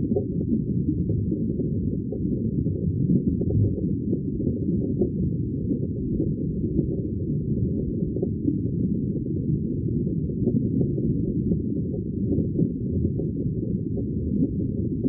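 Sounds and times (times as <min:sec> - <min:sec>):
muffled underwater rumble: 0:00.0 - 0:15.0.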